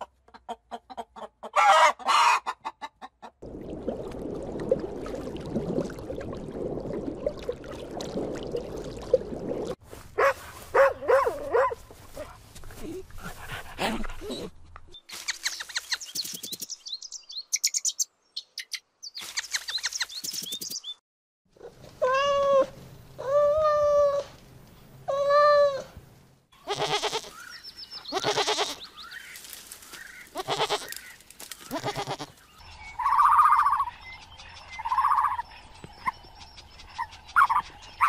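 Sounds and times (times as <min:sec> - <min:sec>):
dog yipping: 0:10.2 - 0:12.3
high chirping calls: 0:14.9 - 0:21.0.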